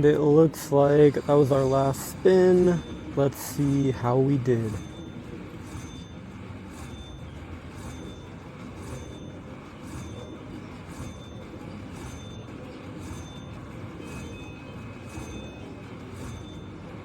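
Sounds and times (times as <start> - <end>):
slot machine electronic chimes: 0.0 - 17.0.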